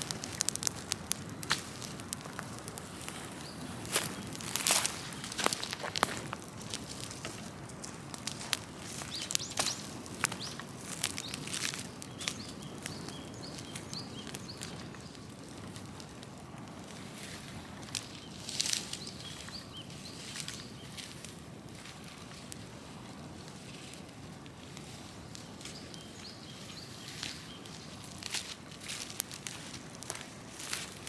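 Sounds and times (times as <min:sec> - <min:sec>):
sharp pops: 0:00.0 - 0:07.4
low rush of flame: 0:00.0 - 0:18.9
fire crackling: 0:00.0 - 0:31.0.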